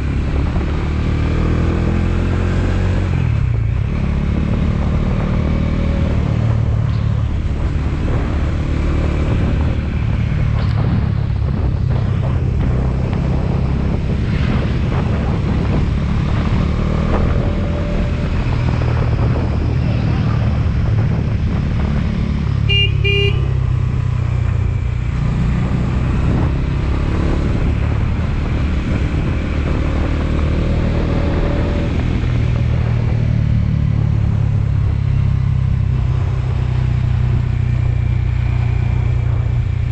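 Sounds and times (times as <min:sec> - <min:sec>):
road and wind noise: 0:00.0 - 0:39.9
motorcycle engine running: 0:03.2 - 0:39.9
vehicle horn beeping: 0:22.6 - 0:23.6.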